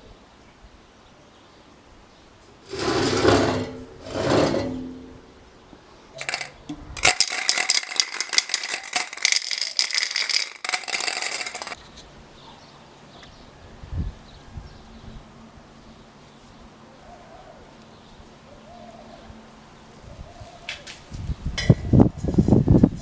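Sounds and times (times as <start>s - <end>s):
hard objects clattering: 2.7s - 5.3s, 6.2s - 11.8s
short scraping sounds: 2.7s - 5.3s.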